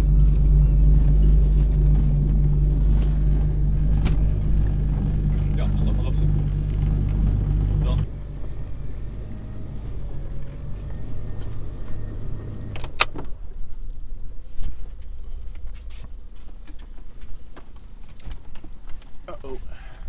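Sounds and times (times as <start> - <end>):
boat engine idling: 0.0 - 10.5
faint low rumble: 0.0 - 17.3.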